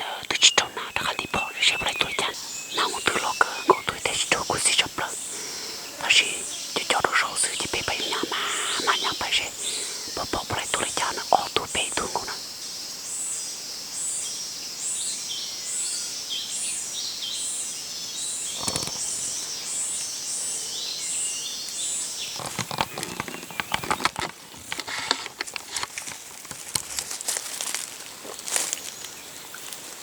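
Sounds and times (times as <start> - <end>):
rustling in dry leaves: 22.5 - 30.0.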